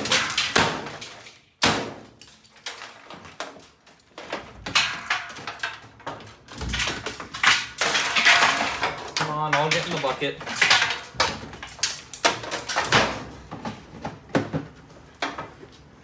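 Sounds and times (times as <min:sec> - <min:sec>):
washing machine knocks and clanks: 0:12.3 - 0:15.6.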